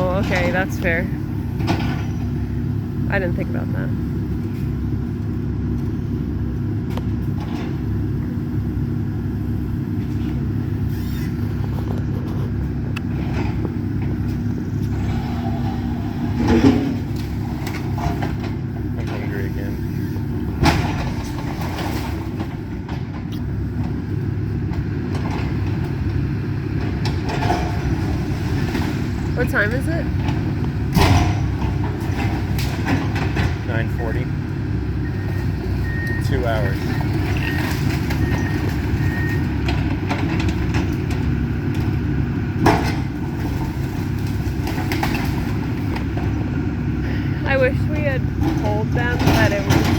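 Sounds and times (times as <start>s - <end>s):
excavator diesel engine rumbling: 0.0s - 49.9s
reversing alarm beeping: 35.0s - 39.5s.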